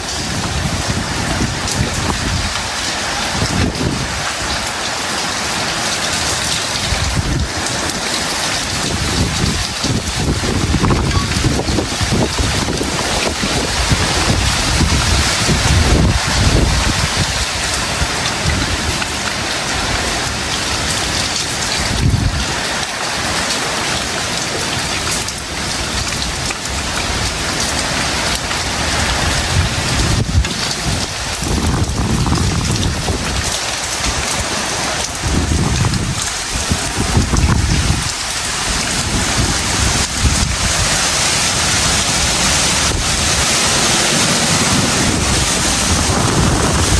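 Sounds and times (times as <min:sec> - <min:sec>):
heavy rain pouring: 0:00.0 - 0:46.9
low rumbles: 0:44.1 - 0:46.9.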